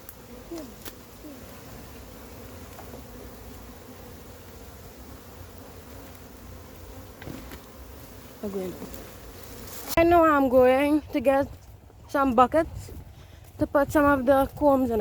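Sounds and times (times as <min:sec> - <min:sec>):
bees buzzing: 0:00.0 - 0:11.4.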